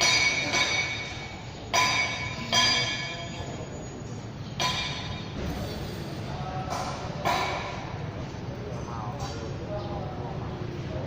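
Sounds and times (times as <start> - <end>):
metal tool struck and ringing: 0.0 - 7.9.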